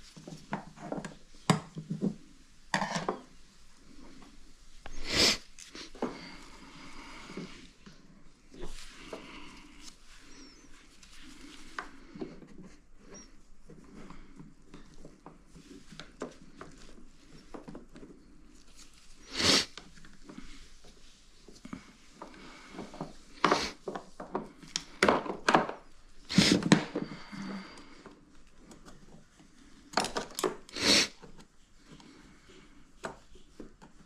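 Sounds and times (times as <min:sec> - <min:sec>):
quiet clatter and handling: 0:00.0 - 0:04.4, 0:27.8 - 0:34.0.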